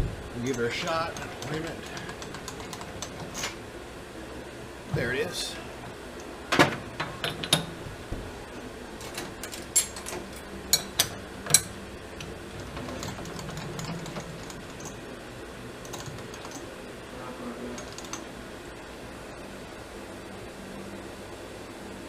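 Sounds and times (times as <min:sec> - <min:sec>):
faint steady hum: 0:00.0 - 0:22.0
metal clicks and knocks: 0:00.5 - 0:03.6, 0:09.0 - 0:15.0.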